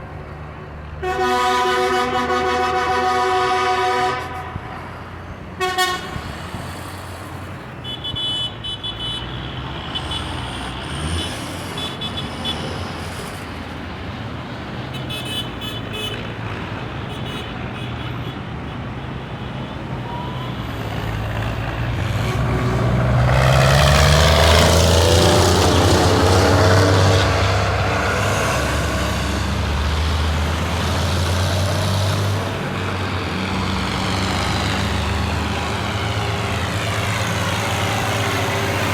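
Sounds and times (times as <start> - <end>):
tractor engines passing: 0.0 - 38.9.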